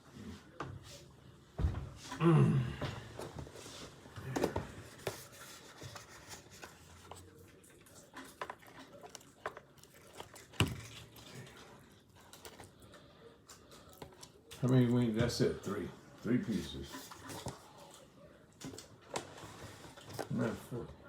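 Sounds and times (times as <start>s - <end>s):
food packaging rustling: 3.2s - 15.2s.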